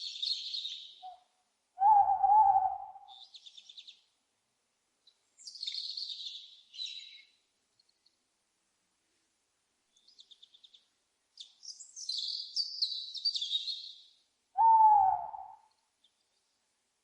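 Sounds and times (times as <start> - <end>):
owl chirps: 0.0 - 1.2, 1.8 - 4.0, 5.4 - 7.3, 11.4 - 15.8
owl hoot: 1.8 - 3.2, 14.6 - 15.7
owl screech: 14.6 - 15.6.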